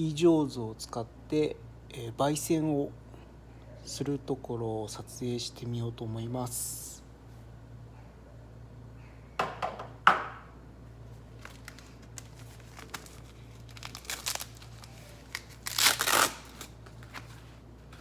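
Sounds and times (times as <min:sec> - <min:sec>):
crinkling rustles: 0:11.0 - 0:18.0.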